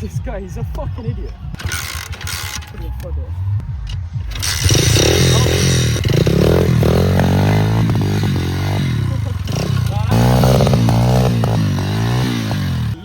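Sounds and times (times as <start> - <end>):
small motorcycle engine revving: 1.6 - 2.7, 4.2 - 13.0.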